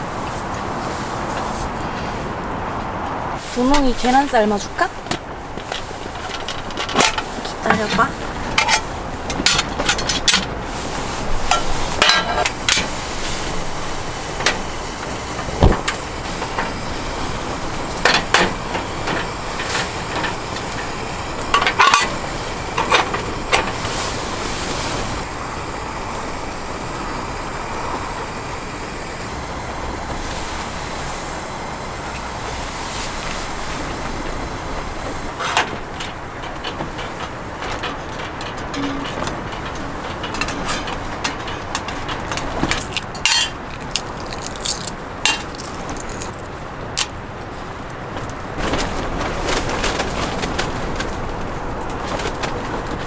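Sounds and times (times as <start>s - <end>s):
camp cookware clinking: 3.6s - 47.2s
steady hiss: 10.1s - 35.7s.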